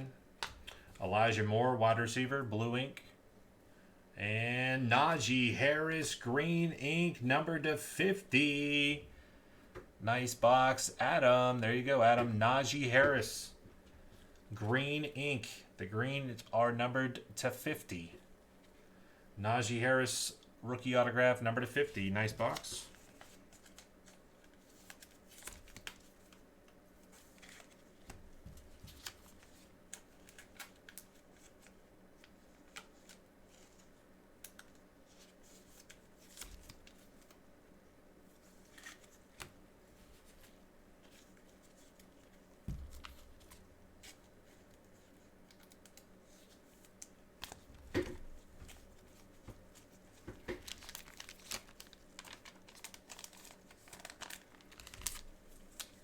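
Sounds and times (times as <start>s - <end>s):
trading card packaging rustling: 38.3s - 56.0s
packaging crinkling: 48.7s - 56.0s.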